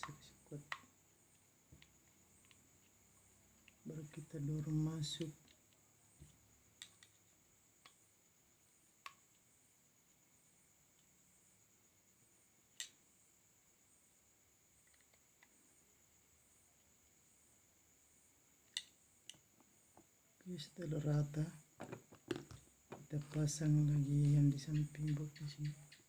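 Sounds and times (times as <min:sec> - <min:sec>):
faint sharp clicks: 0:12.8 - 0:13.0.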